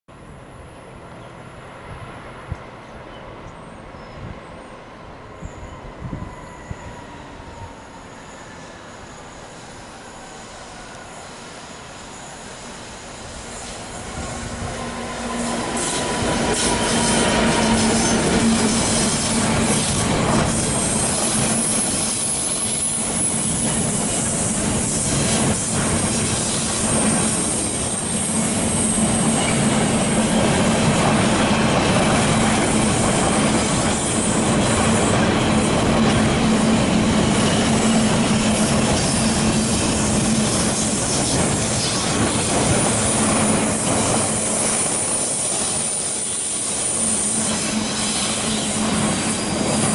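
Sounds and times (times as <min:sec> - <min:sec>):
diesel locomotive passing: 0:00.1 - 0:49.9
high-pitched wheel squeal: 0:05.4 - 0:14.4.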